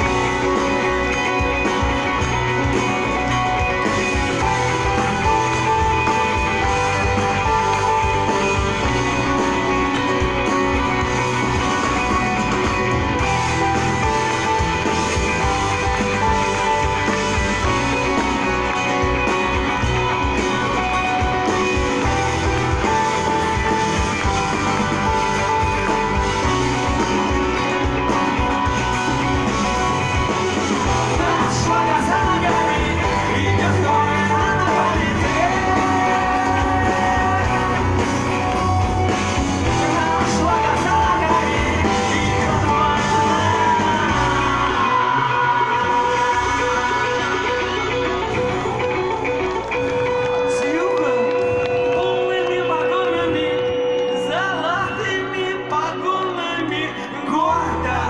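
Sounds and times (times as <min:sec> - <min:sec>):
rock song with guitar and vocals: 0:00.0 - 0:58.0.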